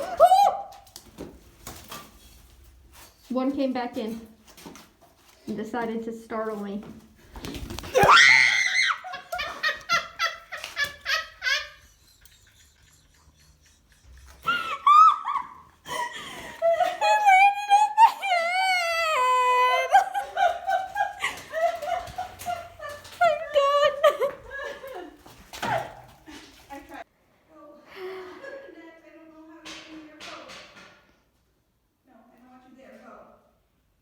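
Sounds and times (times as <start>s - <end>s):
hearty laughter: 8.8s - 27.0s.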